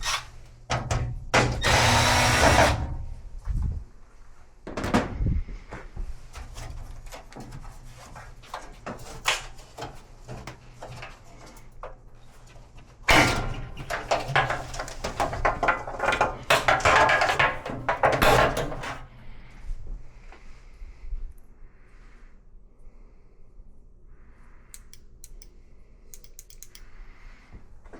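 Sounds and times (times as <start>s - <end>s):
metal parts rattling: 13.1s - 19.0s, 24.8s - 25.5s, 26.2s - 26.8s
tools clicking and knocking: 24.8s - 25.5s, 26.1s - 26.9s.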